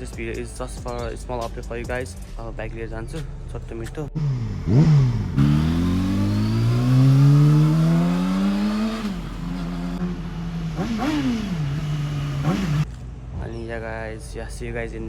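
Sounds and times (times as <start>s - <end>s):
motorcycle engine revving: 4.1s - 13.4s.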